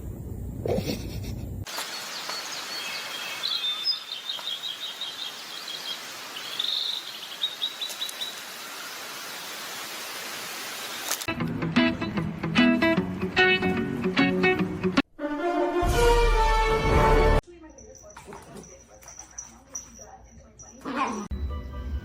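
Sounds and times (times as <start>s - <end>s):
steady outdoor hiss: 0.8s - 11.3s
small birds chirping: 1.7s - 9.9s.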